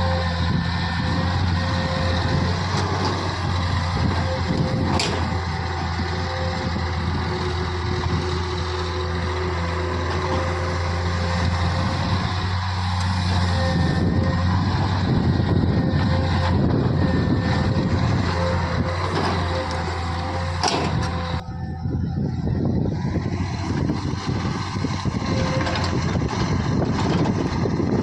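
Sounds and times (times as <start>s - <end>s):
diesel engine droning: 0.0s - 28.0s.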